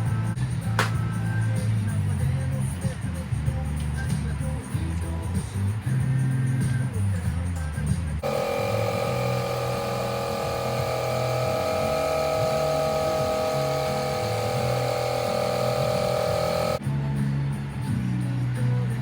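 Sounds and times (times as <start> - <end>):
small electric motor whining: 8.2 - 16.8.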